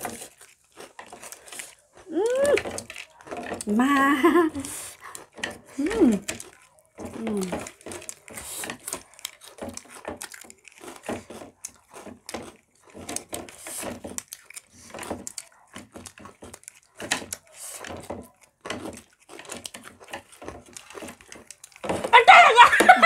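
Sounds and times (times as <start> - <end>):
crunching of snacks being eaten: 0.0 - 22.5.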